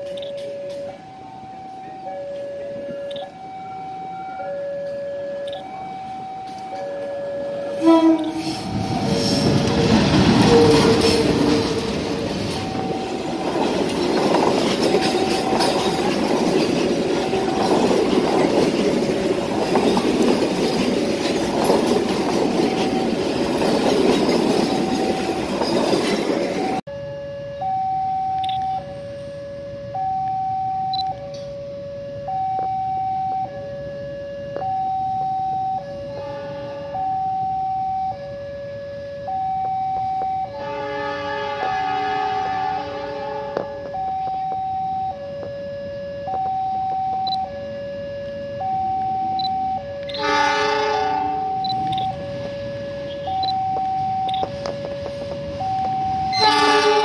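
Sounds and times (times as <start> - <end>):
level crossing alarm two tones: 0.0 - 9.5, 10.4 - 13.9, 26.6 - 36.2, 36.9 - 40.7, 43.7 - 56.9
train wheels on rail: 0.0 - 26.8, 40.1 - 45.6, 48.6 - 57.0
train horn blasts: 7.0 - 12.2, 35.9 - 37.3, 40.4 - 44.0, 50.0 - 52.2, 56.3 - 57.0.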